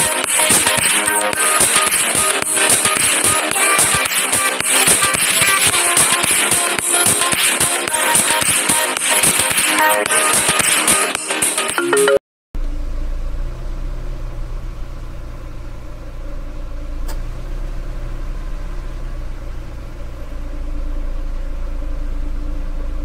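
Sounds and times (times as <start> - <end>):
car engine running: 12.6 - 23.0.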